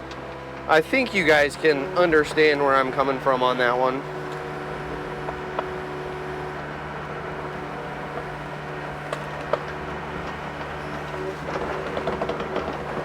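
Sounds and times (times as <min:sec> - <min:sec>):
diesel engine running: 0:00.6 - 0:13.0
sharp clicks and knocks: 0:04.0 - 0:13.0.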